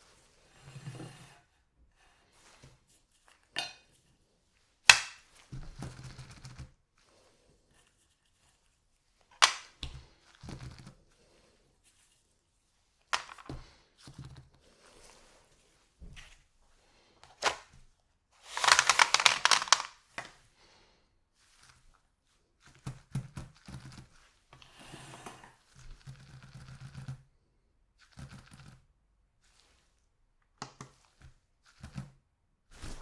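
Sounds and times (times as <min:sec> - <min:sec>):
wrapper film crinkling: 0:09.4 - 0:09.7, 0:13.2 - 0:13.5, 0:18.4 - 0:20.0.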